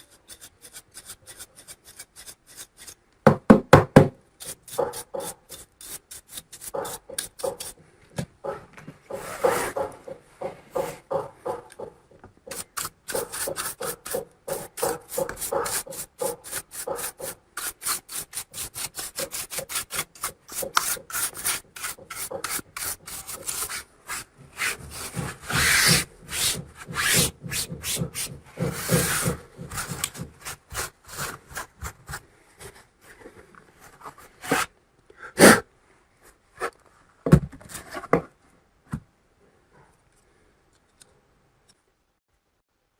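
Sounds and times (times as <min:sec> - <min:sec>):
quick scrubbing strokes: 0:12.5 - 0:32.2.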